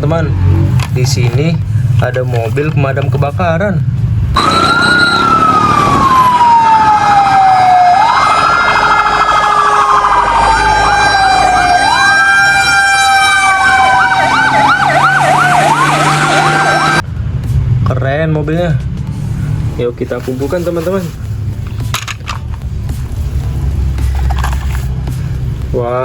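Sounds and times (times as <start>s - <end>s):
toy fire truck siren: 4.4s - 17.0s.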